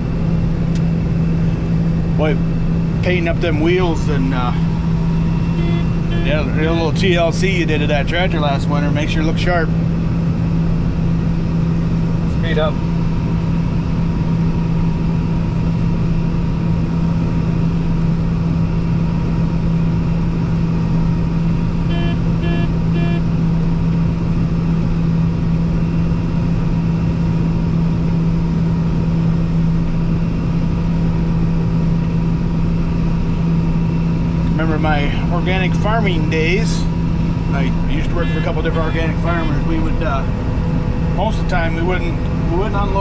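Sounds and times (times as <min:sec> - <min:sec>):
combine harvester droning: 0:00.0 - 0:43.0
short beeps: 0:05.3 - 0:06.6, 0:21.9 - 0:23.2.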